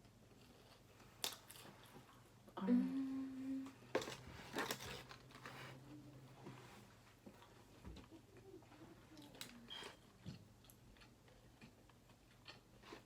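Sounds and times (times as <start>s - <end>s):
faint low hum: 0.0s - 13.0s
person humming: 2.6s - 3.8s.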